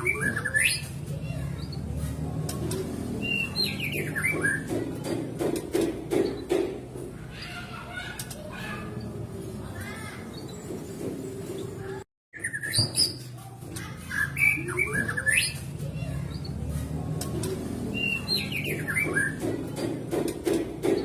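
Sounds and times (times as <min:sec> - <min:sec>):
bird singing whistles and chatter: 0:00.0 - 0:01.9, 0:03.2 - 0:04.7, 0:12.3 - 0:13.4, 0:14.0 - 0:16.6, 0:17.9 - 0:19.4.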